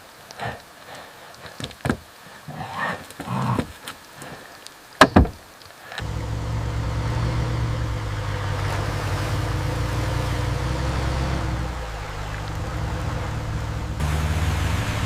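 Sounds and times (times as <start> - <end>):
sharp knocks: 5.0 - 5.4
vehicle engine rumbling: 6.0 - 15.0.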